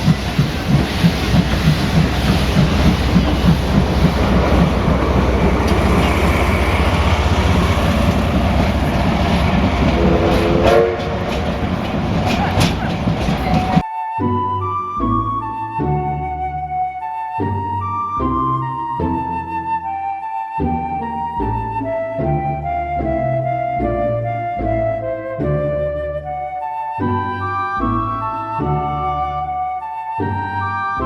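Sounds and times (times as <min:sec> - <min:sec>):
sharp clattering: 0:00.0 - 0:13.8
steam locomotive exhaust beats: 0:00.0 - 0:13.8
steam whistle: 0:00.0 - 0:14.4.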